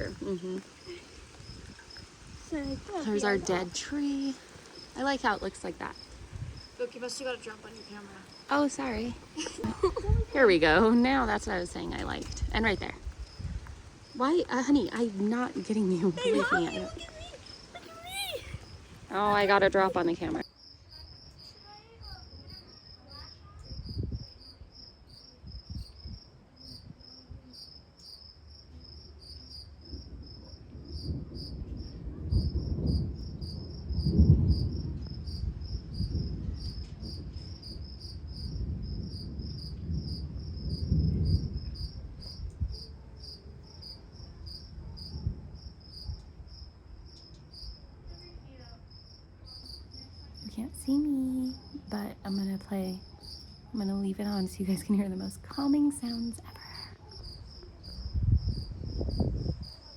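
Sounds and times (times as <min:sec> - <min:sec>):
crickets chirping: 0:00.0 - 0:59.9
rolling thunder rumbles: 0:29.7 - 0:46.7, 0:57.9 - 0:59.8.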